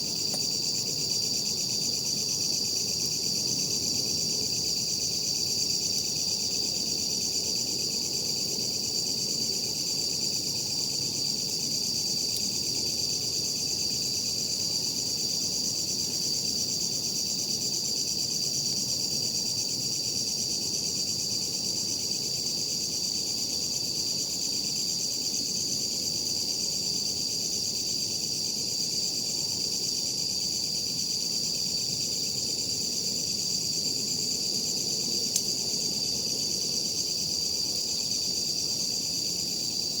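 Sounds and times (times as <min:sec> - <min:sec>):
night insects chirring: 0:00.0 - 0:40.0.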